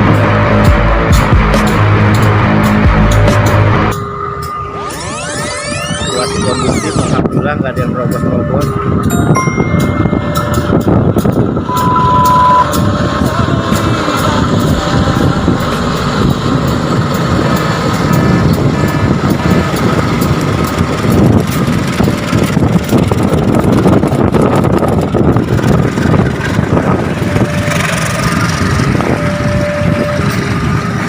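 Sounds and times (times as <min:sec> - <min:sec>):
train wheels rumbling on rails: 0:00.0 - 0:04.6, 0:07.1 - 0:31.0.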